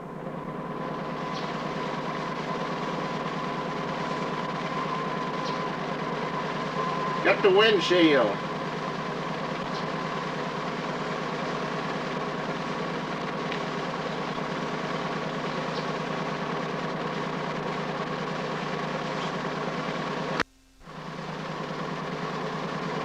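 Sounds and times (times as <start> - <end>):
camera motor whirr and hum: 0.0 - 7.2, 8.4 - 23.0.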